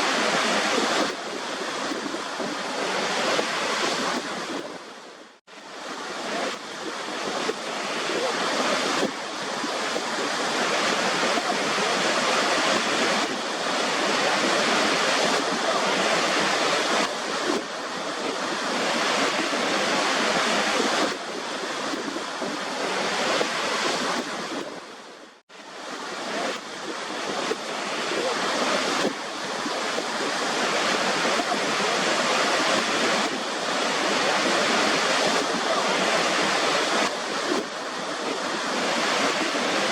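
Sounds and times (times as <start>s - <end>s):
waterfall rushing: 0.0s - 4.9s, 5.6s - 24.9s, 25.7s - 39.9s.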